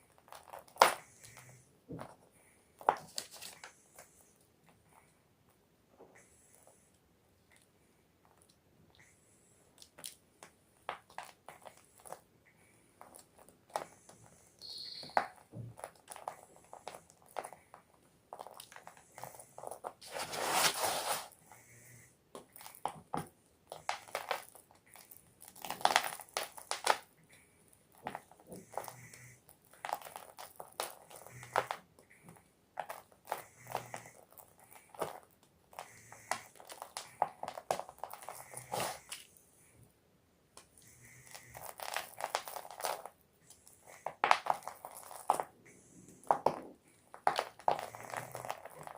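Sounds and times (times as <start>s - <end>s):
chalk being crushed: 19.6s - 21.4s, 43.8s - 45.5s.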